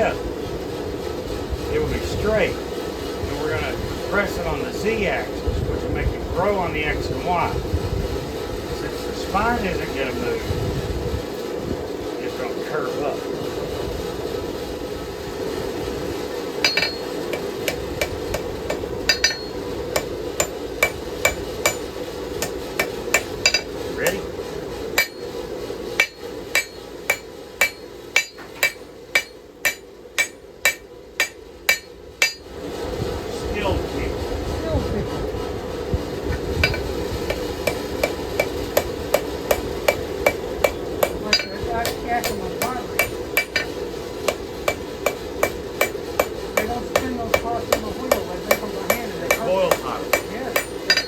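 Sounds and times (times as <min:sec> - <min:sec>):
hammer striking steel on anvil: 0:16.6 - 0:32.5, 0:36.6 - 0:51.0.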